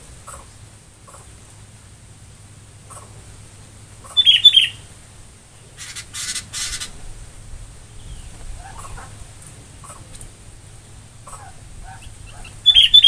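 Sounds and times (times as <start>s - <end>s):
birds chirping: 2.8s - 13.0s
bird hissing rattle call: 5.8s - 7.0s.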